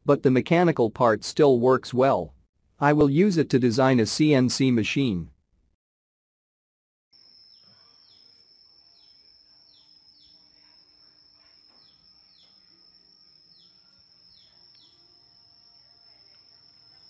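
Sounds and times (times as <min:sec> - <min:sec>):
bird chirping: 0:07.2 - 0:17.0.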